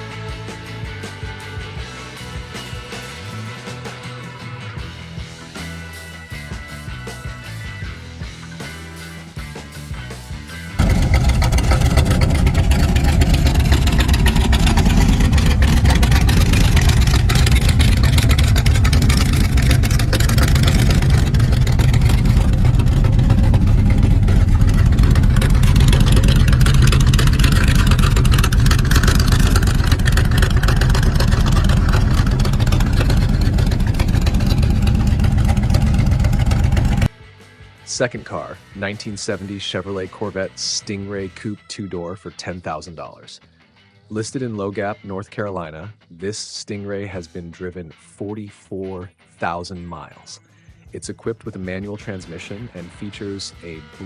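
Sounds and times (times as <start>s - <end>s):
car engine running: 10.8s - 37.1s.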